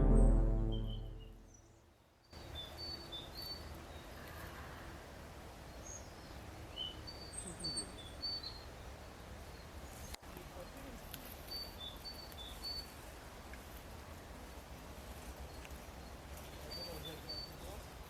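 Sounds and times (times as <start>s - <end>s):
synthesizer music: 0.0s - 1.5s
short high bird chirps: 0.0s - 1.6s.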